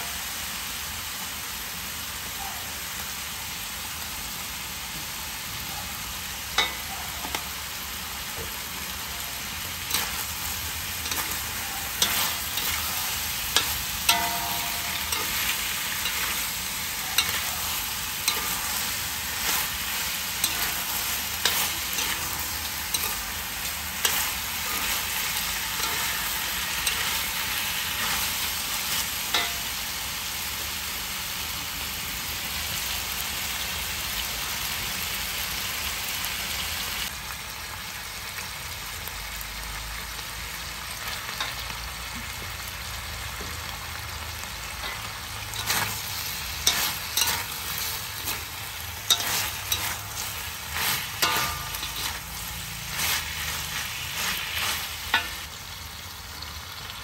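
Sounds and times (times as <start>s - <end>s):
food sizzling in hot oil: 0.0s - 57.0s
metal spatula scraping pan: 9.8s - 29.7s, 44.8s - 55.5s.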